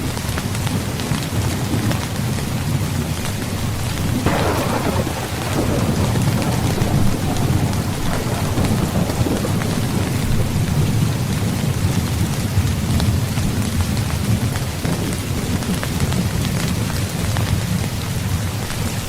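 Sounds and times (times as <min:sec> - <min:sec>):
heavy rain: 0:00.0 - 0:19.0
thunder clap rumbling: 0:03.9 - 0:19.0.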